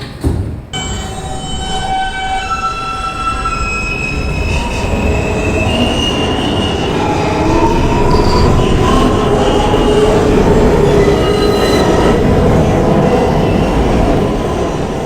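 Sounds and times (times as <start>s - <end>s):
subway train motors whining: 0.0s - 15.0s
wheels rumbling on rail: 0.0s - 15.0s
wheel squeal: 0.8s - 10.0s.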